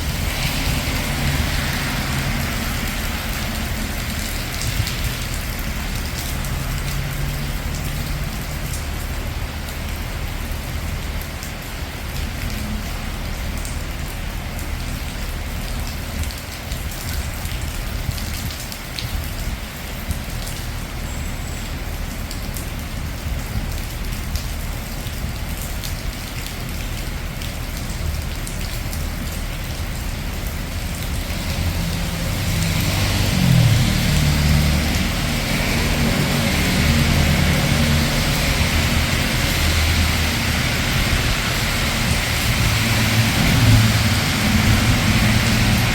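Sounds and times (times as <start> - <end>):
rain on street: 0.0 - 45.9
traffic hum: 0.0 - 45.9
vehicle engine approaching: 30.5 - 45.9.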